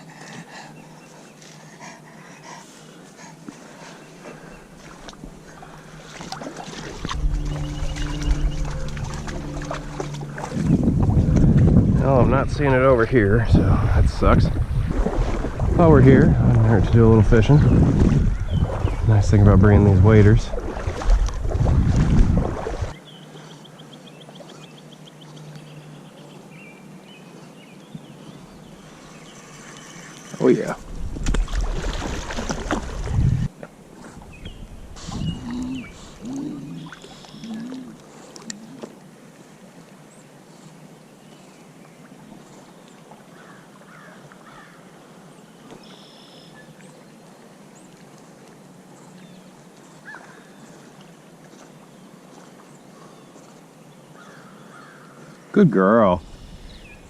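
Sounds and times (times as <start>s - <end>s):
bird calls: 0.0s - 11.0s, 34.2s - 38.9s, 42.4s - 44.8s, 45.4s - 47.0s, 49.0s - 50.9s, 52.8s - 55.3s, 56.2s - 57.0s
rush of moving water: 0.0s - 57.0s
bird singing faintly: 5.6s - 11.3s, 34.3s - 38.0s, 45.6s - 46.8s
rough rushing noise: 5.9s - 18.4s.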